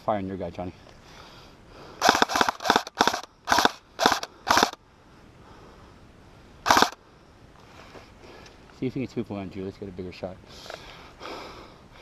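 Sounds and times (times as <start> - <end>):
airsoft rifle firing bursts: 2.0 - 4.8, 6.7 - 7.0.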